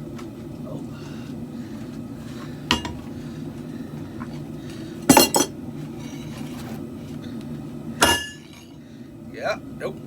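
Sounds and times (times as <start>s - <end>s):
steady low hum: 0.0s - 10.0s
steel clanking on steel: 8.0s - 8.8s.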